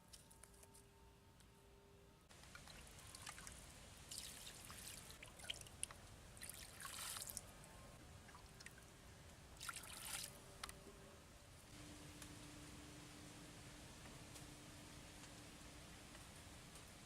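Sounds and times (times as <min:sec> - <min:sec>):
water pouring and trickling: 0:02.3 - 0:07.5, 0:09.6 - 0:10.4.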